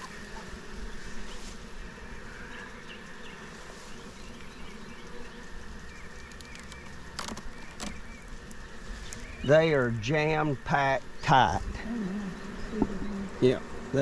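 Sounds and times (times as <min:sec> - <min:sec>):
honeybees humming: 0:00.0 - 0:14.0.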